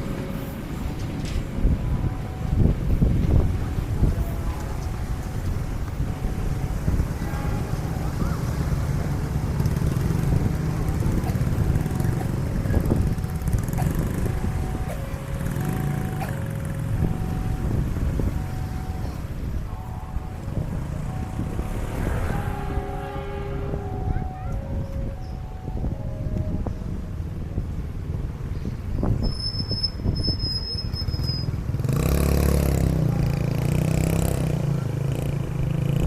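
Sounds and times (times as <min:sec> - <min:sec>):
rumble of passing vehicles: 0:00.0 - 0:36.0
level-crossing two-note alarm: 0:13.0 - 0:26.8.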